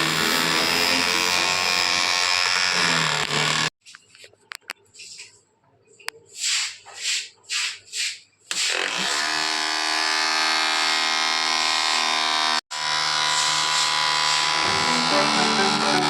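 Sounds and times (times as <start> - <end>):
small electric motor buzzing: 0.0 - 3.8, 8.7 - 16.0.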